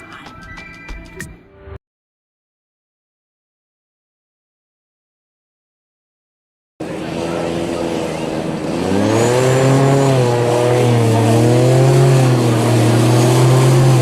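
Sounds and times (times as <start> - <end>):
motorboat engine running: 6.8 - 14.0.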